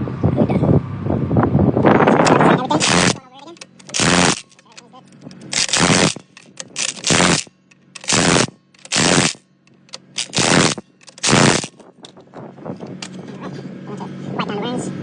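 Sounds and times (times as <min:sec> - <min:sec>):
steady low hum: 0:00.0 - 0:15.0
pneumatic impact wrench bursts: 0:02.2 - 0:04.7, 0:05.3 - 0:11.8.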